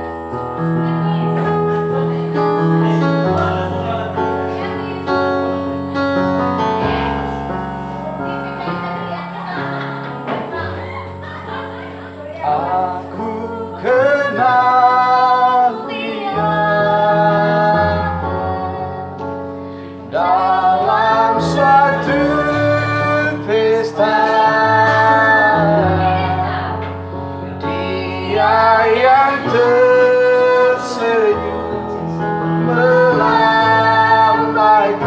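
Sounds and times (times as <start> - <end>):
instrumental accompaniment: 0.0 - 35.0
child singing: 10.8 - 19.1.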